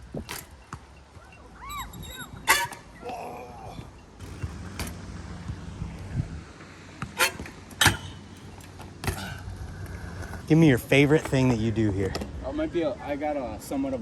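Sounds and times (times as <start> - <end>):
brief squeaks: 1.3 - 3.0
bike wheels rolling on ramps: 3.7 - 11.8.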